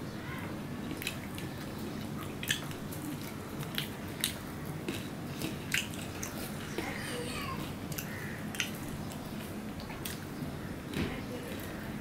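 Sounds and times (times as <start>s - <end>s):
person chewing: 2.0s - 6.6s
wet mouth clicks and smacks: 2.2s - 6.4s, 7.9s - 8.8s.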